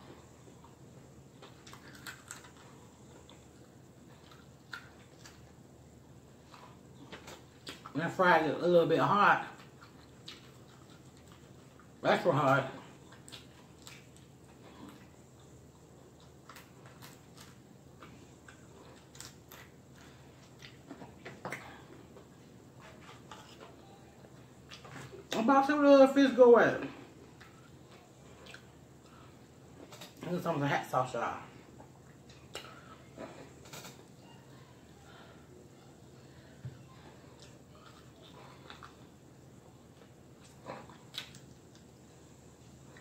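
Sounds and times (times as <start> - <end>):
chewing fried fish: 0.0 - 25.4, 26.9 - 30.2, 31.5 - 43.0
lip smacks and mouth clicks: 9.6 - 12.0, 13.0 - 22.2, 27.4 - 29.2, 33.6 - 34.2, 39.9 - 42.0
faint crunchy clicks: 31.8 - 34.2.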